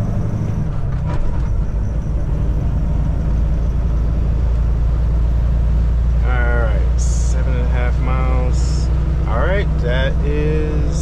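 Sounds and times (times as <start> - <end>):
road noise: 0.0 - 11.0
truck diesel engine rumble: 0.0 - 11.0.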